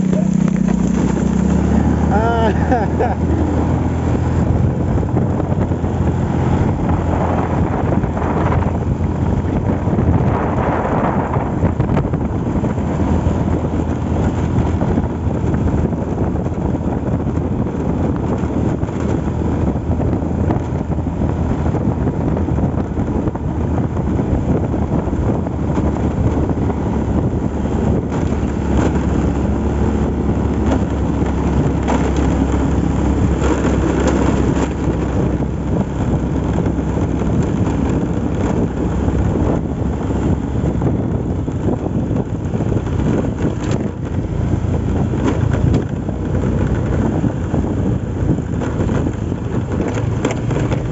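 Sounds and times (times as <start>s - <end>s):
vehicle engine running: 0.0s - 50.9s
wind rushing over microphone: 0.0s - 50.9s.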